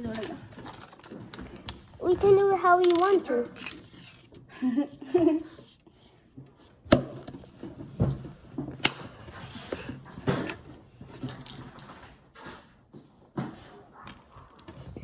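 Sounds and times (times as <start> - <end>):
plastic pieces handled: 0.0 - 5.8.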